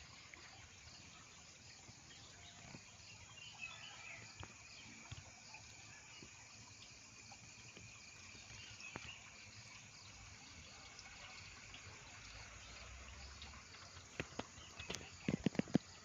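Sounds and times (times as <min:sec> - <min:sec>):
faint ticks: 0:04.2 - 0:10.1, 0:10.9 - 0:16.0.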